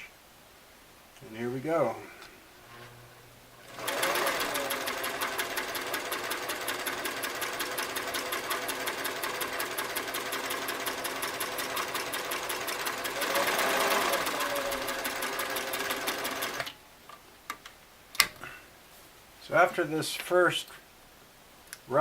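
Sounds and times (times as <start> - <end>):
sewing machine running: 3.6 - 16.7.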